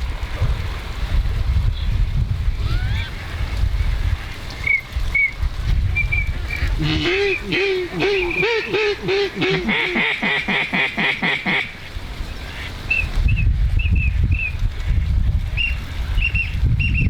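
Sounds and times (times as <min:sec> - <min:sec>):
duck call quacks: 0:06.8 - 0:11.7.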